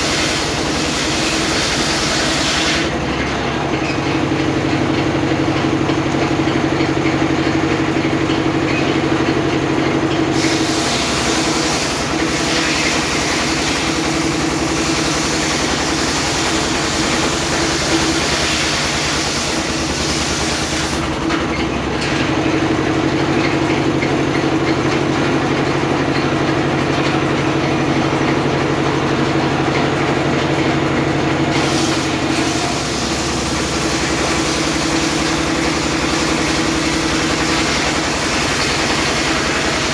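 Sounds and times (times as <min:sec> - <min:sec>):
saw blade cutting wood: 0:00.0 - 0:03.0, 0:10.3 - 0:21.2, 0:31.5 - 0:39.9
sawmill motor hum: 0:00.0 - 0:39.9.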